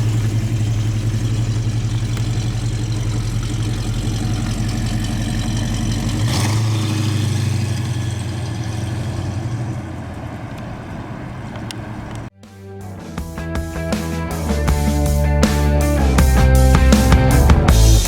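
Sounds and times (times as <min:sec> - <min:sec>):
car engine idling: 0:00.0 - 0:12.3.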